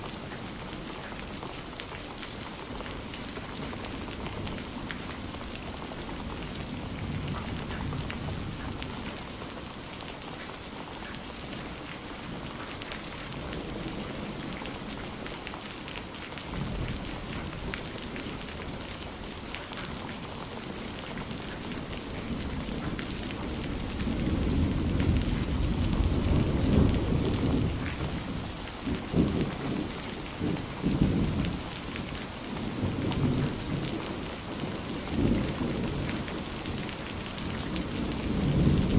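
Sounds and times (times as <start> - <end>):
steady rain falling: 0.0 - 38.9
thunder rumbling: 20.6 - 38.9.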